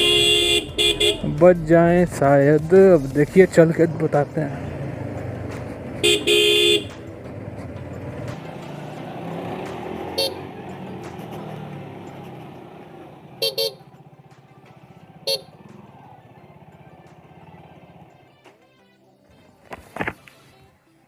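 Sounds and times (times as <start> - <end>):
vehicle horns tooting: 0.0 - 1.7, 6.0 - 7.0, 10.0 - 10.6, 13.3 - 14.1, 15.1 - 16.0
traffic engine rumble: 0.0 - 18.5.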